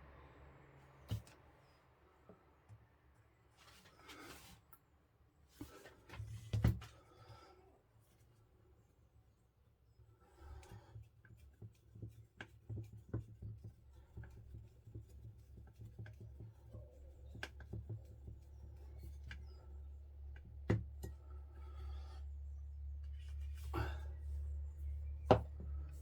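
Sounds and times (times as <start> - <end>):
low steady hum: 13.6 - 26.0.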